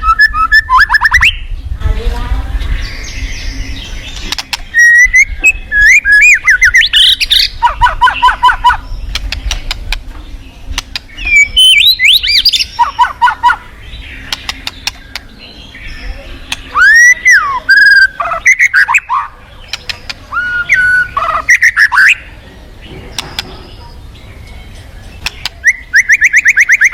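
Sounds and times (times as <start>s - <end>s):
songbird singing whistles: 0.0s - 1.5s, 2.9s - 9.6s, 11.0s - 13.6s, 15.7s - 19.3s, 20.3s - 22.3s, 25.2s - 26.9s.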